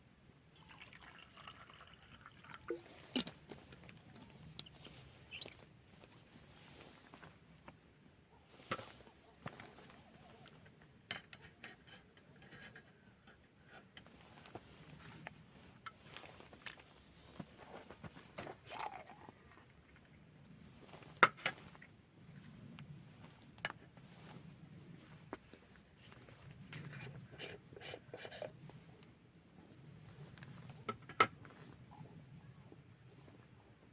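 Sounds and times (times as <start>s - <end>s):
soft rustling: 2.7s - 10.8s, 14.0s - 33.9s.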